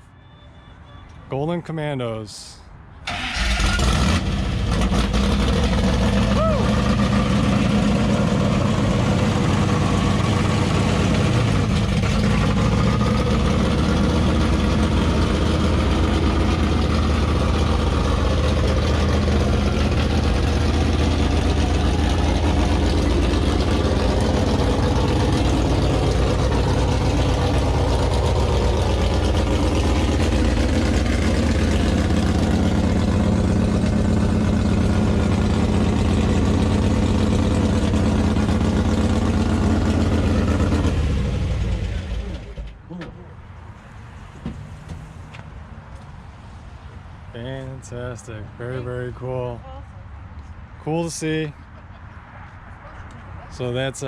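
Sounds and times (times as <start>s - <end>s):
race car engine idling: 4.4s - 42.8s.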